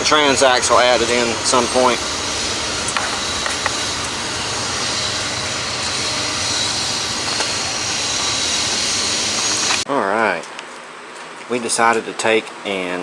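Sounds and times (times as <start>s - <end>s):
steady mechanical rushing noise: 0.0s - 9.9s.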